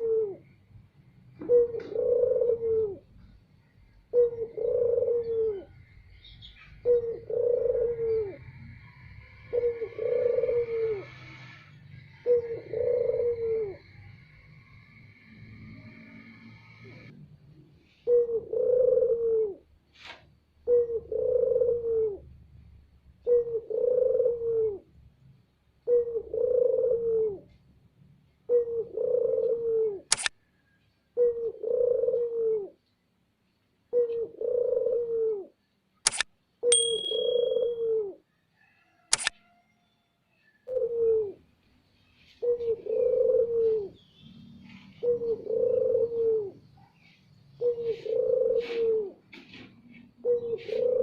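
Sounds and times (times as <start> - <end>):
dove cooing: 0.0 - 0.6, 1.3 - 5.9, 6.5 - 14.9, 17.9 - 19.8, 20.6 - 22.4, 23.2 - 25.0, 25.8 - 27.6, 28.4 - 30.1, 31.1 - 32.8, 33.8 - 35.7, 36.6 - 38.3, 40.6 - 41.5, 42.1 - 44.0, 44.6 - 51.0
sharp clicks: 30.1 - 30.4, 36.0 - 37.4, 39.1 - 39.4.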